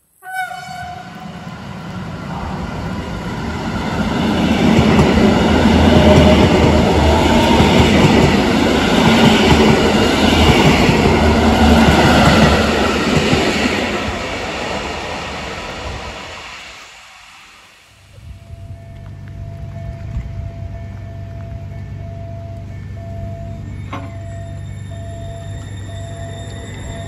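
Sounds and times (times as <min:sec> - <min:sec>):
brief horn-like note: 0:00.2 - 0:01.3
train rail rumble and wheel clatter: 0:00.3 - 0:27.0.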